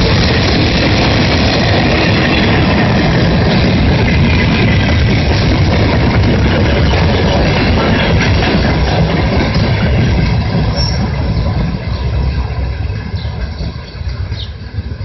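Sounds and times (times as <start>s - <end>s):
train wheels rumbling and clattering: 0.0s - 15.0s.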